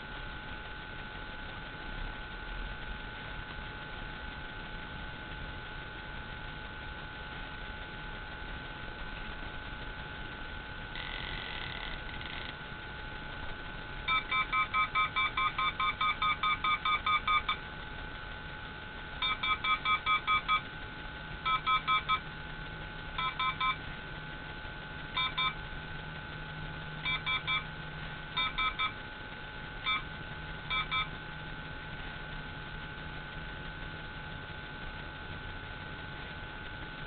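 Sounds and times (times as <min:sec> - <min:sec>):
steady high whine: 0:00.0 - 0:37.0
detector beeping: 0:14.1 - 0:17.7, 0:19.2 - 0:20.7, 0:21.4 - 0:22.3, 0:23.2 - 0:23.8, 0:25.1 - 0:25.6, 0:27.0 - 0:27.7, 0:28.3 - 0:29.0, 0:29.8 - 0:31.2.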